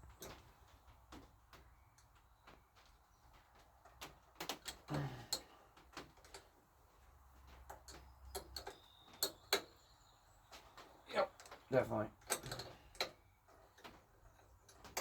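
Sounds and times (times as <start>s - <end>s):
hand tools clinking: 11.3s - 15.0s.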